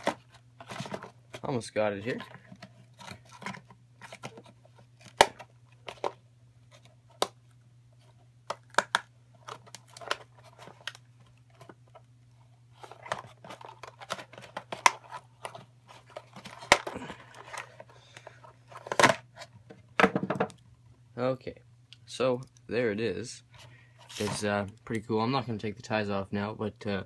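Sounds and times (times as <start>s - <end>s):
plastic packaging clicks and snaps: 8.5s - 10.2s.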